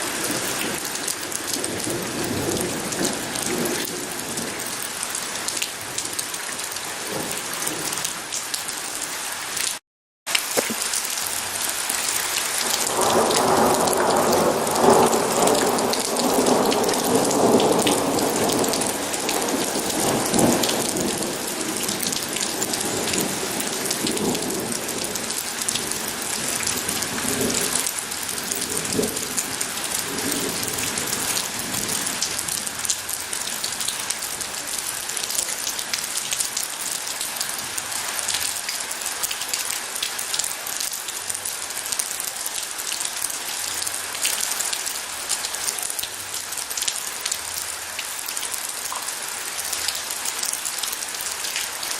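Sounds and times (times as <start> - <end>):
heavy rain: 0.0 - 51.9
rolling thunder: 12.6 - 32.3.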